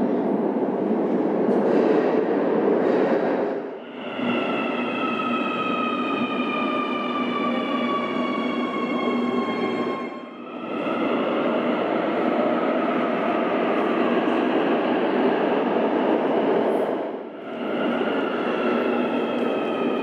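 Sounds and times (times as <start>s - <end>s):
train rail rumble: 0.0s - 9.8s.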